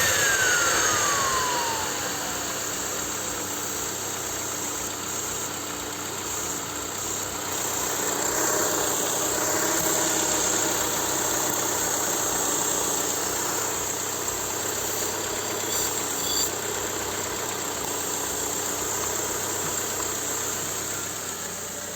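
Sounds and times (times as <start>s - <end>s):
steady high hiss: 0.0s - 5.5s
petrol engine running: 0.0s - 15.7s.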